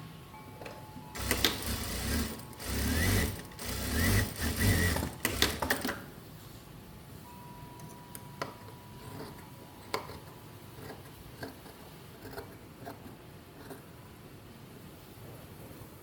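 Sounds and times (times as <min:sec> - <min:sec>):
sewing tools clicking and tapping: 0:01.2 - 0:06.1
faint steady tone: 0:06.9 - 0:10.6.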